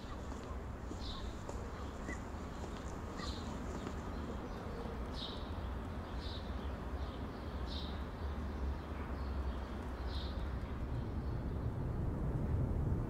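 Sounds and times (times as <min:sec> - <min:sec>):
bird chirping: 0:00.0 - 0:11.7
steady low rumble: 0:09.7 - 0:13.0.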